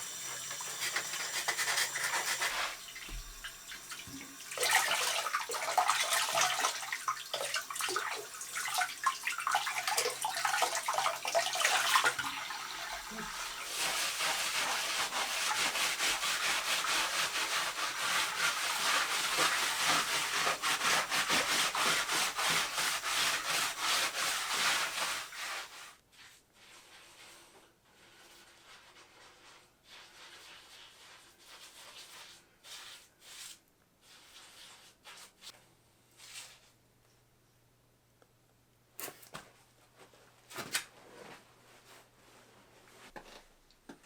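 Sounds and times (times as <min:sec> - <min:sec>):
hand rubbing on hard surface: 0:13.1 - 0:35.5.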